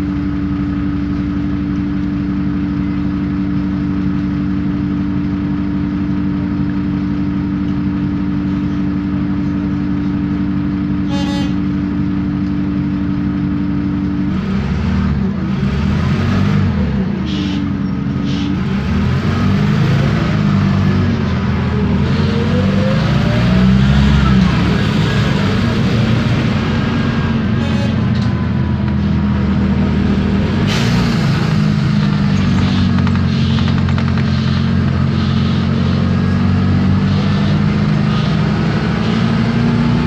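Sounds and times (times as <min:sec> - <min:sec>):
diesel bus engine: 0:00.0 - 0:40.0
rising whine: 0:19.7 - 0:40.0.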